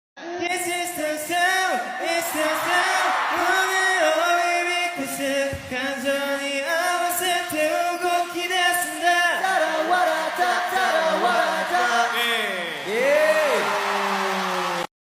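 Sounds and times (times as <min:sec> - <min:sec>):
wordless choir singing: 0:09.1 - 0:12.7.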